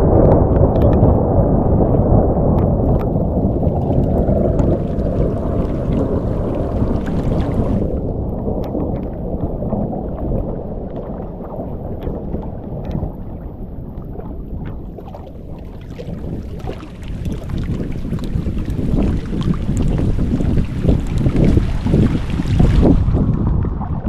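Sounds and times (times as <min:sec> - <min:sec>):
thunder rumbling: 0:00.0 - 0:24.0
rain ticks: 0:00.2 - 0:13.2.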